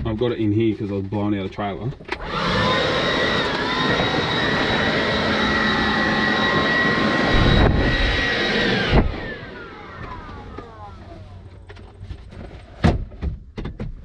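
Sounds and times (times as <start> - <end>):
handheld blower running: 2.1 - 11.6.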